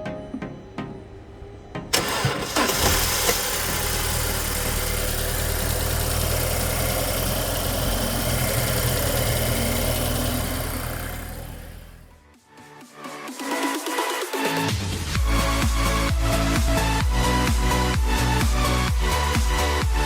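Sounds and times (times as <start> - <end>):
car engine idling: 0.0 - 12.2
car engine starting: 0.0 - 12.2, 14.9 - 19.9.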